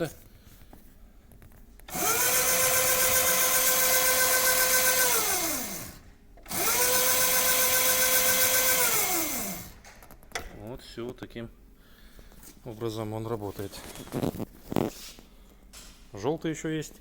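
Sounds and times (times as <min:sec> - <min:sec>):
electric motor whining: 0:01.9 - 0:09.8.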